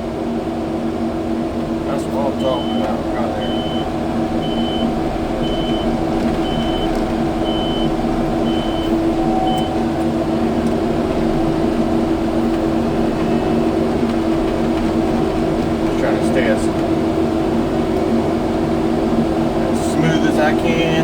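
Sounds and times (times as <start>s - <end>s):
diesel engine running: 0.0s - 21.0s
reversing alarm beeping: 2.3s - 10.0s.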